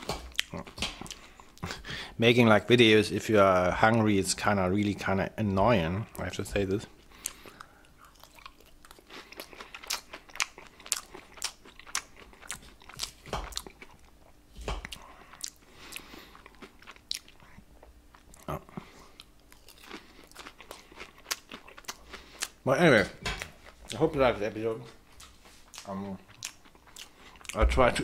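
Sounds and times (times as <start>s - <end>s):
chewing crispy noodles: 6.9s - 22.6s, 25.2s - 27.6s.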